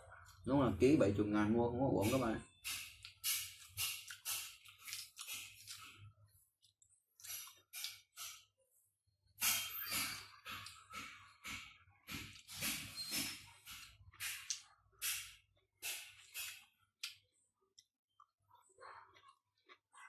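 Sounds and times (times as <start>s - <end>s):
person chewing: 2.6s - 8.6s, 10.4s - 11.3s, 12.1s - 12.6s, 13.4s - 20.0s.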